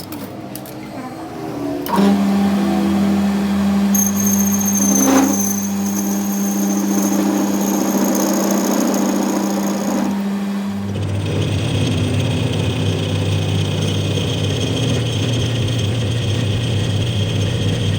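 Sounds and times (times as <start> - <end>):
high-pitched whine: 4.0 - 10.2
machine humming: 4.0 - 11.6.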